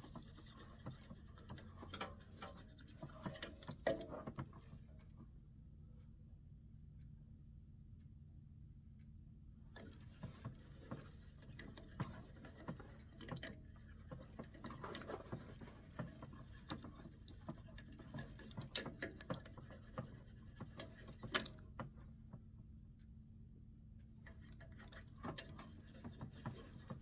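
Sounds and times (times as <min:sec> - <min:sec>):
small clicks and taps: 0:00.1 - 0:04.7, 0:09.8 - 0:21.9.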